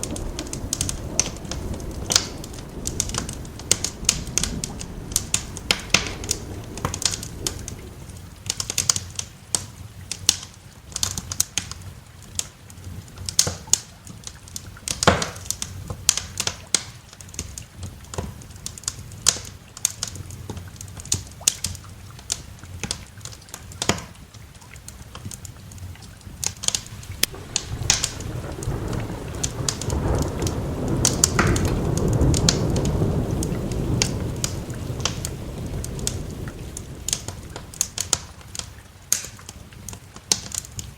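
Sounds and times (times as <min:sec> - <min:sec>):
thunder rolling: 0:00.0 - 0:09.0, 0:26.8 - 0:38.6
light rain hiss: 0:00.0 - 0:40.9
wood fire crackling: 0:00.0 - 0:40.9.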